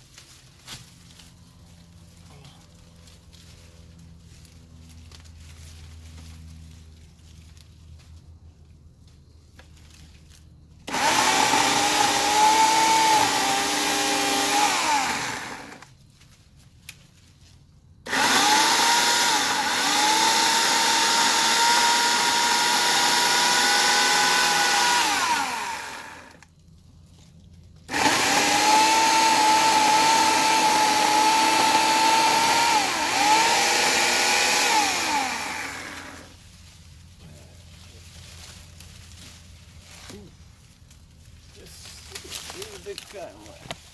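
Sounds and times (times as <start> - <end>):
electric chainsaw whining: 10.9 - 15.9, 18.1 - 26.5, 27.9 - 36.4.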